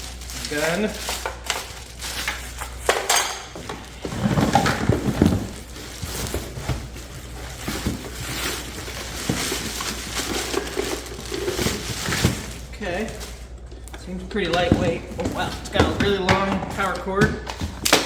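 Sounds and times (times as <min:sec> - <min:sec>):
plastic packaging rustling: 0:00.0 - 0:18.0
plastic parts clunking: 0:00.6 - 0:18.0.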